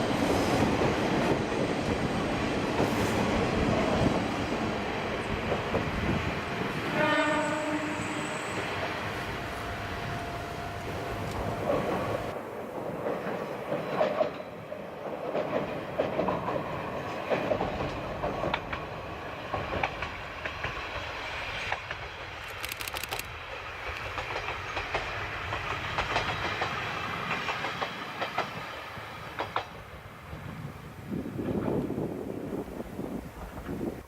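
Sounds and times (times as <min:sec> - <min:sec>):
diesel railcar running: 0:00.0 - 0:30.6
wheels clicking over rail joints: 0:10.9 - 0:20.8, 0:21.7 - 0:28.6.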